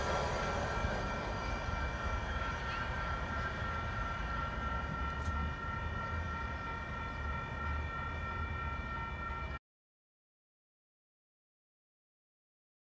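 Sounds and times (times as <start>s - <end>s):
distant train rumble: 0.0s - 9.6s
high ringing tones: 0.0s - 9.6s.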